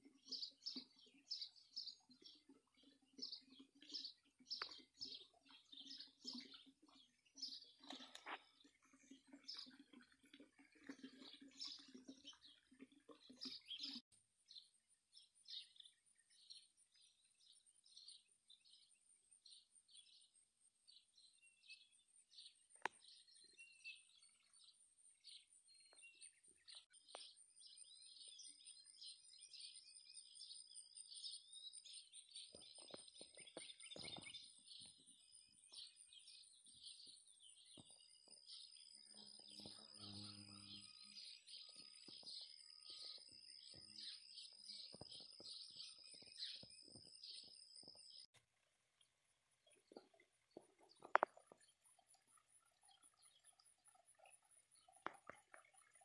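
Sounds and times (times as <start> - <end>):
songbird chirping: 0.0 - 48.4, 49.0 - 56.0.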